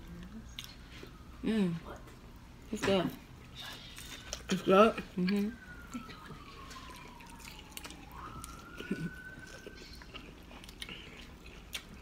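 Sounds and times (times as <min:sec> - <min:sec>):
faint siren wailing: 0:00.0 - 0:12.0
chewing and biting food: 0:05.2 - 0:12.0.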